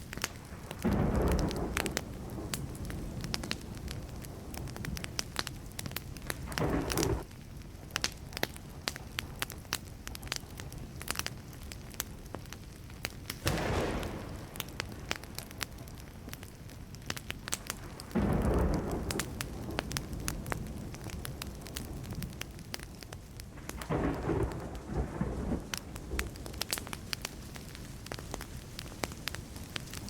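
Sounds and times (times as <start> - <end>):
wood fire crackling and popping: 0.0 - 30.0
low rumble of thunder: 0.3 - 7.3, 13.4 - 16.5, 17.4 - 30.0.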